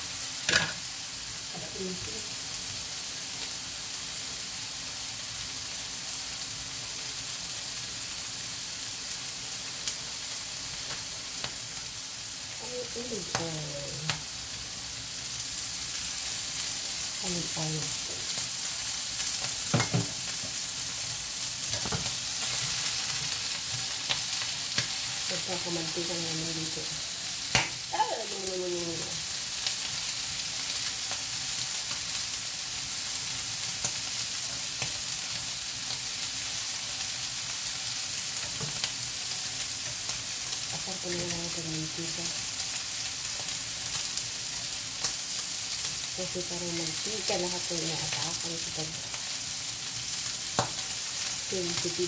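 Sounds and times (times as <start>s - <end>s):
meat sizzling in oil: 0.0s - 52.0s.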